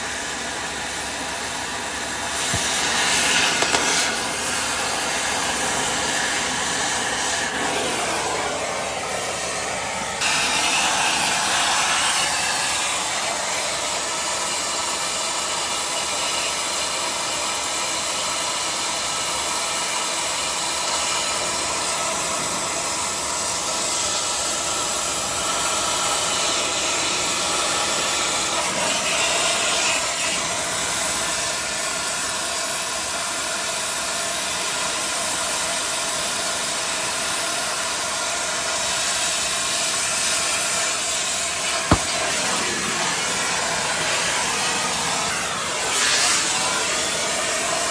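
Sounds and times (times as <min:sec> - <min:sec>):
cutting torch hissing: 0:00.0 - 0:16.8, 0:38.4 - 0:47.9.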